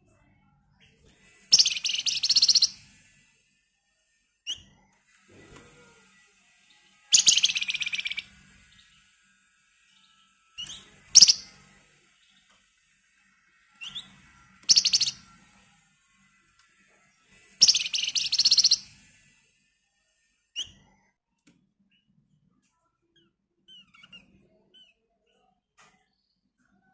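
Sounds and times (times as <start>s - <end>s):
short bird chirp: 1.5s - 2.7s, 14.7s - 15.1s
songbird rattling trills: 1.5s - 2.8s, 7.1s - 8.3s, 10.6s - 11.5s, 14.7s - 15.2s, 17.6s - 18.9s.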